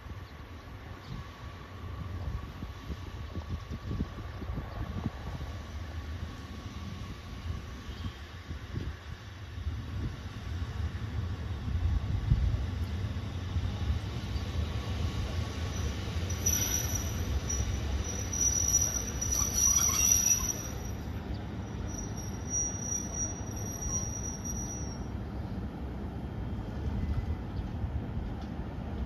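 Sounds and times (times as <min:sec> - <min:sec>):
train low rumble: 0:00.0 - 0:29.0
high-pitched brake squeal: 0:15.7 - 0:25.2.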